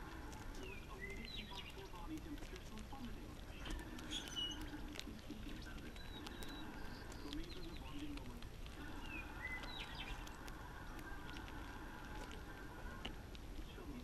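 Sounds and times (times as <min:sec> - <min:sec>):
low dove-like cooing: 0:00.0 - 0:01.5
small birds chirping: 0:00.0 - 0:14.0
small clicks: 0:00.0 - 0:14.0.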